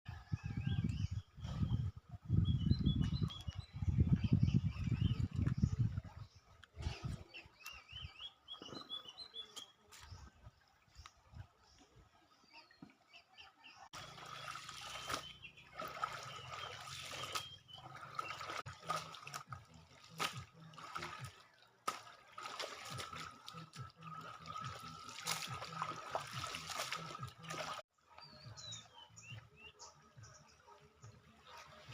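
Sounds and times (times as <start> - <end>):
water splashing from washing clothes: 13.9 - 27.9.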